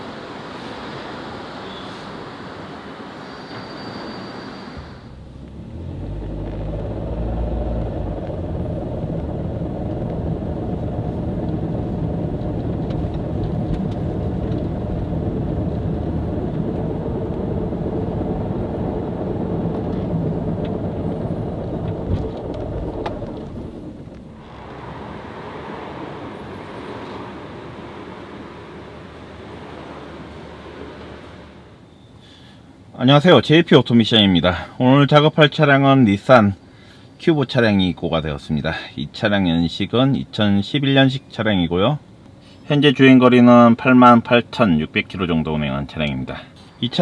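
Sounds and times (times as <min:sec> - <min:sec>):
car driving rumble: 0:04.7 - 0:33.0.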